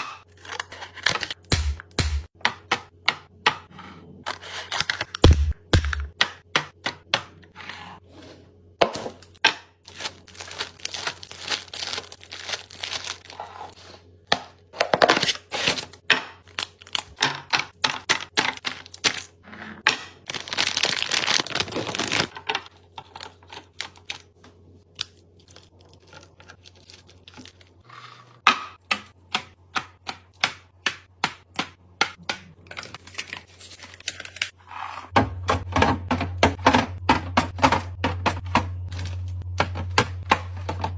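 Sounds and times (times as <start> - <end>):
plastic packaging crinkling and tearing: 9.9 - 13.9, 15.1 - 17.2, 20.3 - 22.4, 32.8 - 34.6.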